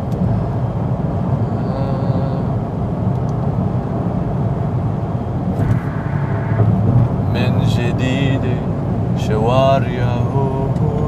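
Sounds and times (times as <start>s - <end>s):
road and engine rumble in car: 0.0s - 11.0s
faint pitched sound: 5.5s - 9.1s.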